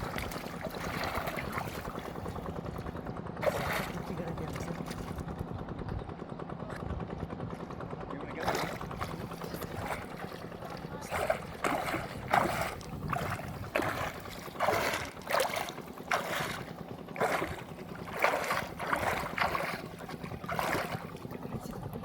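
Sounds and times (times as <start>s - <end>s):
water splashing and sloshing: 0.0s - 5.5s, 8.3s - 22.0s
faint low hum: 8.3s - 22.0s.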